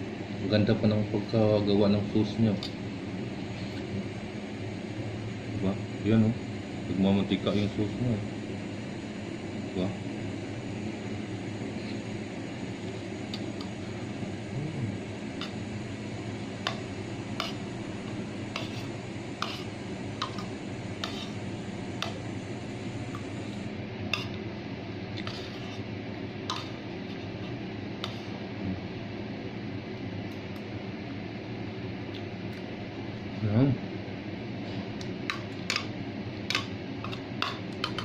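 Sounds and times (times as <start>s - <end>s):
steady background hum: 0.0s - 38.0s.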